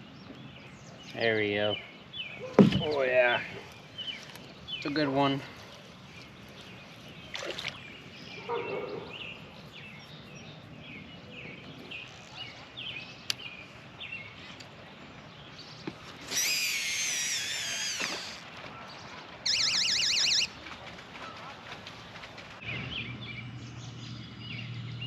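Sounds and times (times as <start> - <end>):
bird trill: 16.3 - 18.4, 19.4 - 21.4
bird chirps: 19.4 - 20.6.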